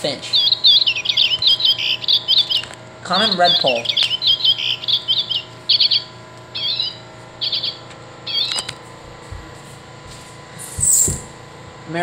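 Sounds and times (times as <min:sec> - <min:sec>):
recorded bird chirps and twitters: 0:00.0 - 0:08.8, 0:10.6 - 0:11.3.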